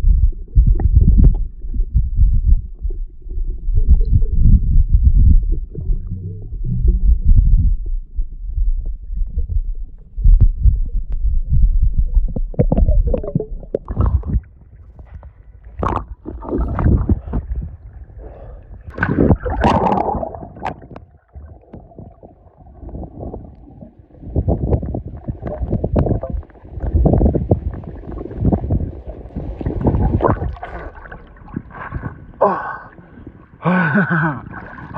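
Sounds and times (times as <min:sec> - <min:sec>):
low rumbling: 0:00.0 - 0:34.9
river water gurgling and splashing: 0:18.9 - 0:33.2.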